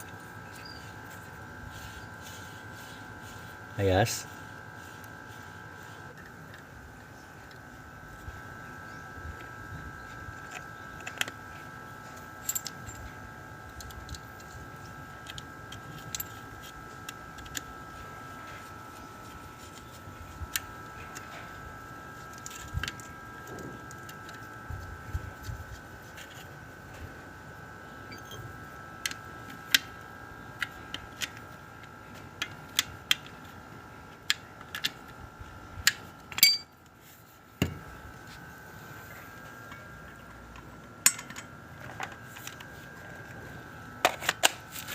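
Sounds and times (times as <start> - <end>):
steady high-pitched hum: 0.0 - 44.9
metallic clinks of hand tools: 36.3 - 36.7.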